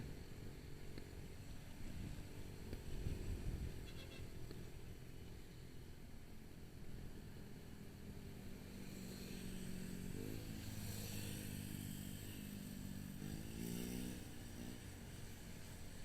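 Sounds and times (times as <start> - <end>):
road and wind hiss: 0.0 - 16.0
motorcycle engine revving: 8.7 - 16.0.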